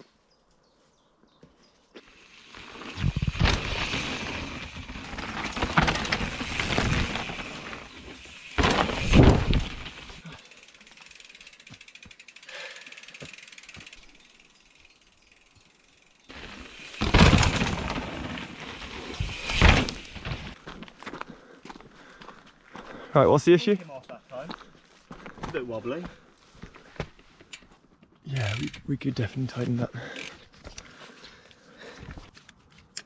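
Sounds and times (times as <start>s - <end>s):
bike tyres on dirt: 0.0s - 32.9s
bike chain and frame rattling: 2.0s - 20.6s, 28.3s - 29.0s, 30.0s - 30.4s
freewheel hub ratcheting: 10.4s - 17.1s, 28.3s - 28.9s, 30.1s - 30.4s.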